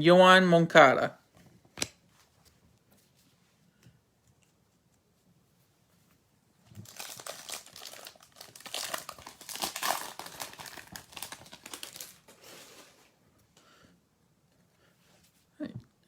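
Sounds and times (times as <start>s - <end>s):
plastic wrapper tearing and crinkling: 6.8s - 12.8s.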